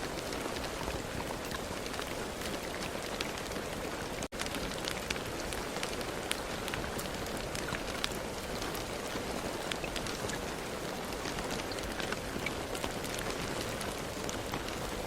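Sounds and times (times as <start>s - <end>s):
raindrops ticking: 0.0s - 15.0s
steady rain hiss: 0.0s - 15.0s.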